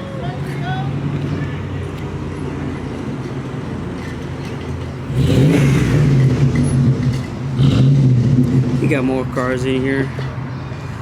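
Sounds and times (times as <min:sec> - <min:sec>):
car engine revving: 0:05.0 - 0:09.4.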